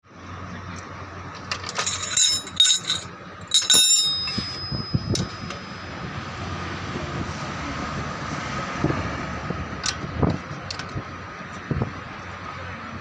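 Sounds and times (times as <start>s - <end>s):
metal clinking and ringing: 1.4s - 6.1s.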